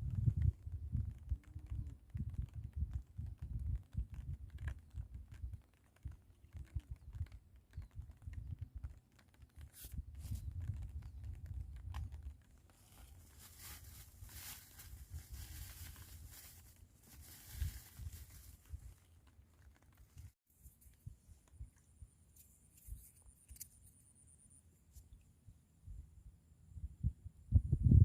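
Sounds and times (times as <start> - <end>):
wind buffeting microphone: 0.0 - 5.6, 26.7 - 28.0.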